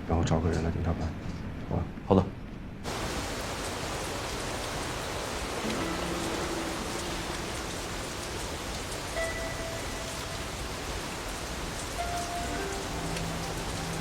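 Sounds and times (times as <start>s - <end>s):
steady rain: 2.8s - 14.0s
soft background music: 5.6s - 14.0s.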